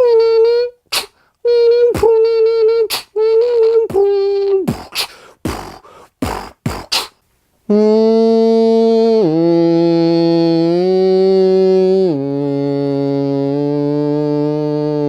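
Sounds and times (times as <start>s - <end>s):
person beatboxing: 0.0s - 8.3s
mouth clicks and pops: 0.8s - 7.3s.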